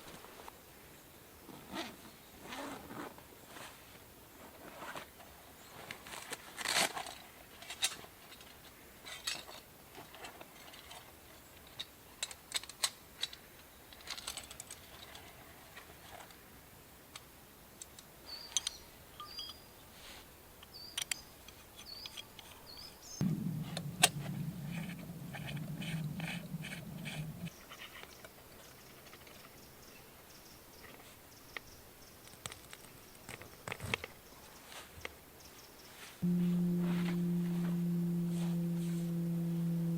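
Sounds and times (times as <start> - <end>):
low steady hum: 23.2 - 27.5, 36.2 - 39.9.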